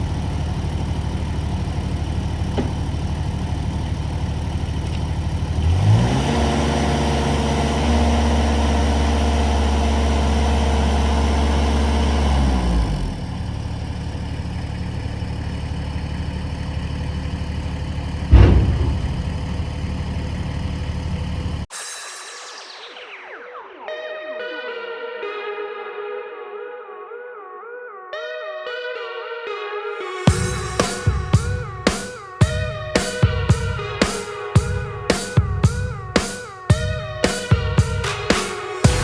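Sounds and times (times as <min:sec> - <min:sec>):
heavy machine engine revving: 0:05.6 - 0:13.2, 0:18.3 - 0:21.2
sharp thump: 0:18.3 - 0:20.2.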